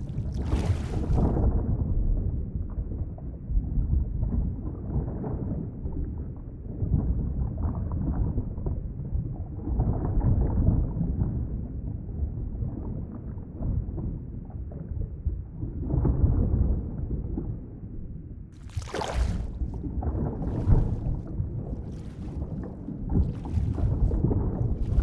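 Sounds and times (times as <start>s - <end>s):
muffled underwater rumbling: 0.0s - 8.7s, 18.5s - 25.0s.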